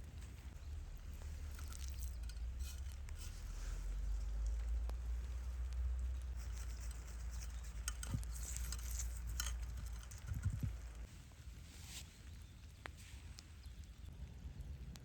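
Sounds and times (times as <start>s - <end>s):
light clicks and rustling: 0.1s - 11.1s.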